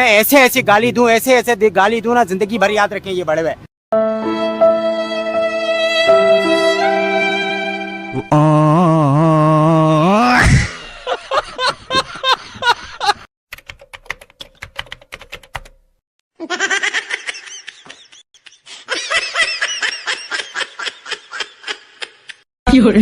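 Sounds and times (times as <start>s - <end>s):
keyboard typing clicks: 13.5s - 15.8s.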